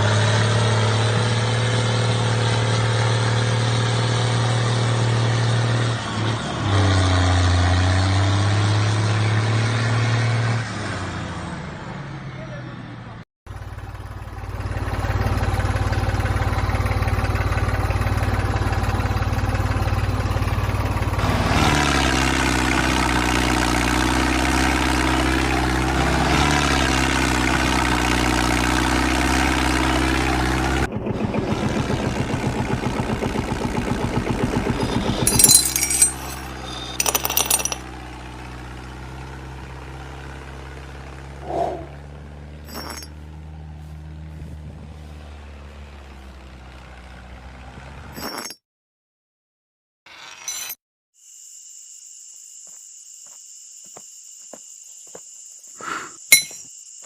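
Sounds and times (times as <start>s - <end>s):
clinks: 34.8s - 37.9s, 42.7s - 43.2s, 48.2s - 48.6s, 56.3s - 56.7s.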